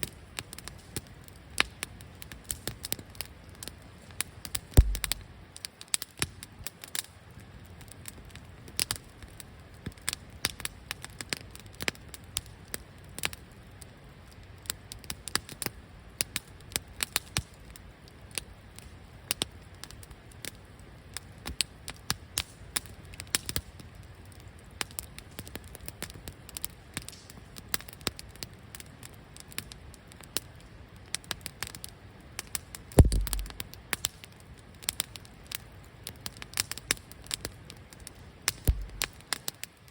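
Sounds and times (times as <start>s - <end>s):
wood fire crackling: 0.0s - 39.9s
low rumble: 4.8s - 5.2s, 33.0s - 33.6s, 38.7s - 39.0s.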